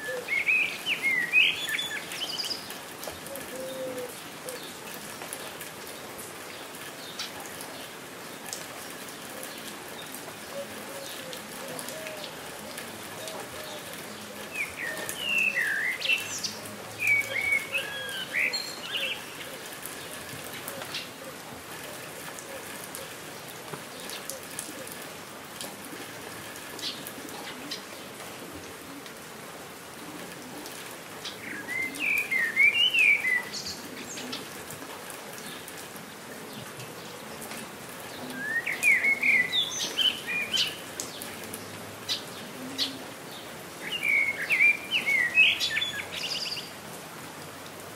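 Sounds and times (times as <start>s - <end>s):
songbird chirping: 0.0s - 4.7s, 9.5s - 21.2s, 31.2s - 34.5s, 38.1s - 46.7s
rain falling: 0.0s - 47.9s.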